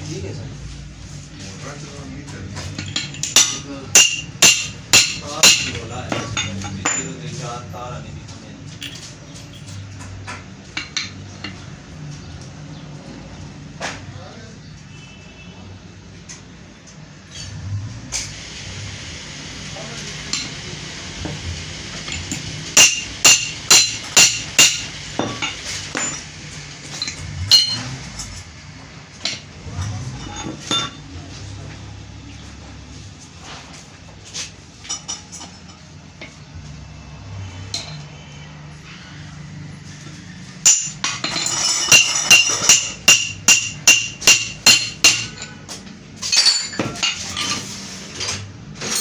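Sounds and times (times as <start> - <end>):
hammer striking metal: 2.7 - 7.1, 22.1 - 26.3, 26.9 - 28.5, 40.6 - 47.2.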